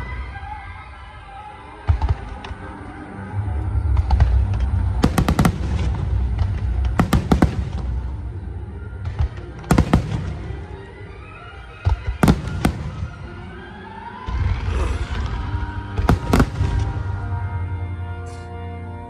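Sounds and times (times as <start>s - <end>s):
music: 0.0s - 19.0s
fireworks bursting: 3.8s - 17.4s.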